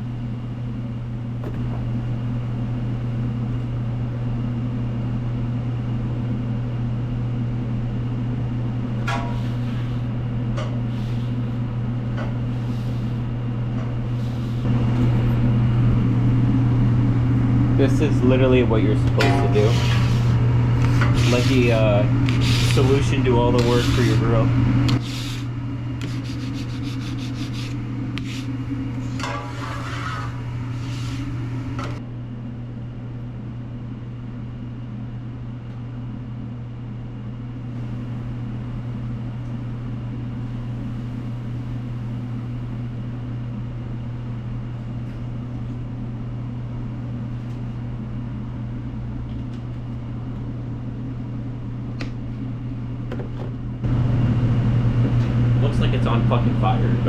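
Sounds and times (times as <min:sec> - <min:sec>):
steady low hum: 0:00.0 - 0:57.0
scraping on a grill: 0:09.1 - 0:11.5, 0:12.2 - 0:13.2, 0:14.1 - 0:14.7, 0:19.2 - 0:24.4, 0:25.0 - 0:31.5.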